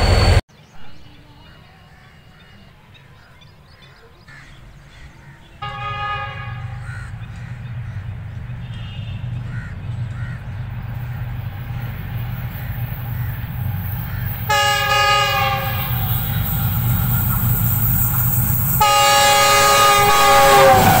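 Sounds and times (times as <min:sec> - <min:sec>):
train low rumble: 0:00.0 - 0:00.4, 0:03.0 - 0:21.0
train horn: 0:05.6 - 0:21.0
crows cawing: 0:09.4 - 0:14.9.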